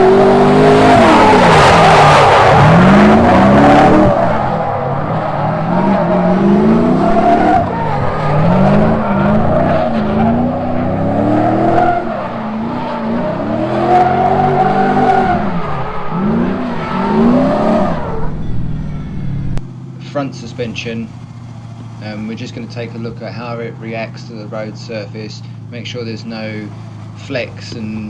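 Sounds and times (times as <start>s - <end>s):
tyres squealing: 0.0s - 19.4s
car engine revving: 0.0s - 28.0s.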